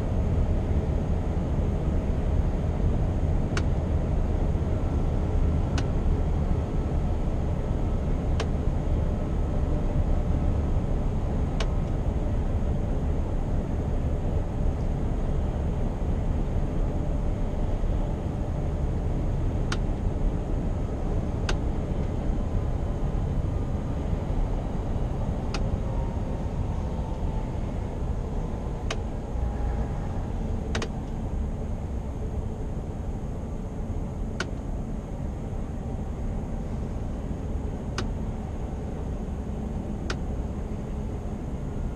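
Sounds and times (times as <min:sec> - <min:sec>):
road and tyre rumble: 0:00.0 - 0:41.9
faint sharp clicks: 0:30.7 - 0:31.2.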